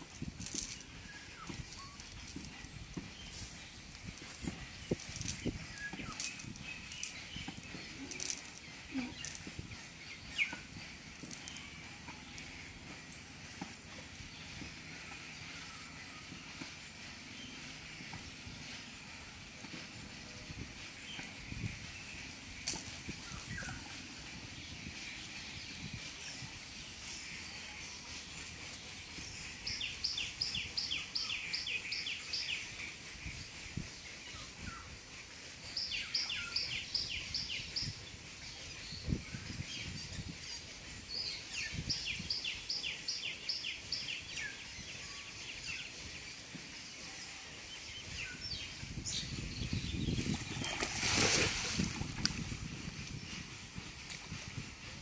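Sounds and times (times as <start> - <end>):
water sloshing from wading: 50.2 - 52.6.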